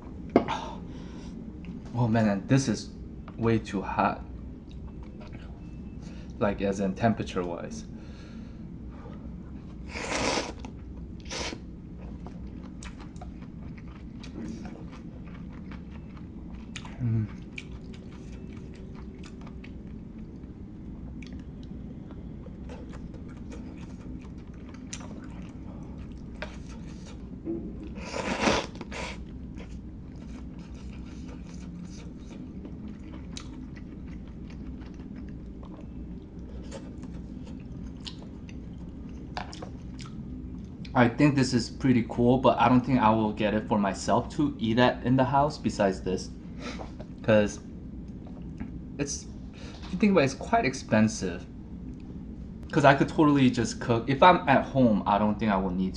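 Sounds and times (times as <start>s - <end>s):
person chewing food: 10.0s - 40.9s.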